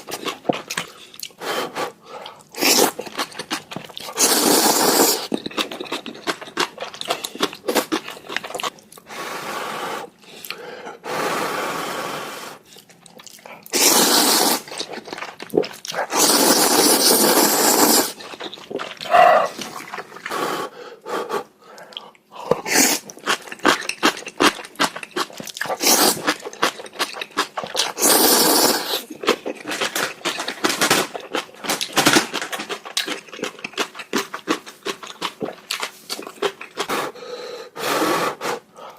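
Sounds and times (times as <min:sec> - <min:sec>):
noodles being slurped: 0:02.2 - 0:08.7, 0:12.8 - 0:20.6, 0:22.6 - 0:37.2
wet clicking chewing: 0:05.3 - 0:09.0, 0:12.8 - 0:13.7, 0:18.2 - 0:20.3, 0:21.8 - 0:28.0.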